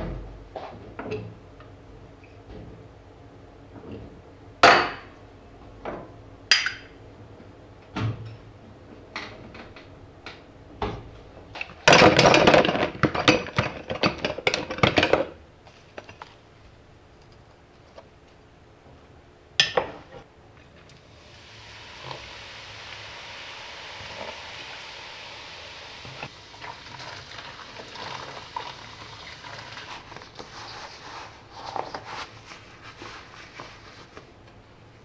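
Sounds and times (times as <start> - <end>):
clatter of kitchenware: 11.8 - 15.4.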